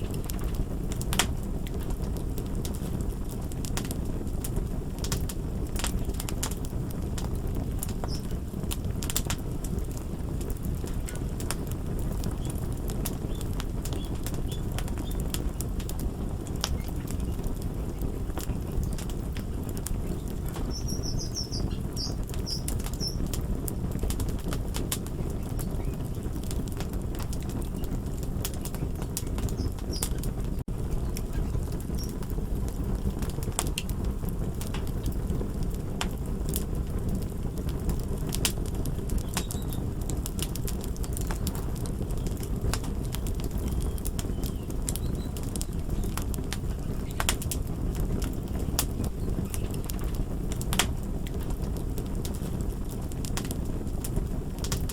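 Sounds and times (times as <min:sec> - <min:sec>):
fire crackling: 0:00.0 - 0:54.9
sharp pops and snaps: 0:07.2 - 0:08.3.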